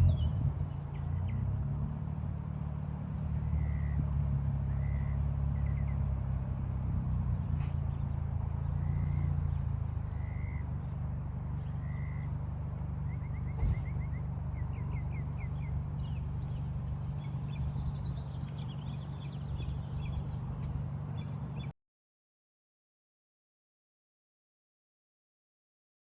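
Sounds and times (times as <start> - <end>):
birds chirping: 0.0 - 1.6, 3.3 - 21.7
car engine idling: 0.0 - 21.7.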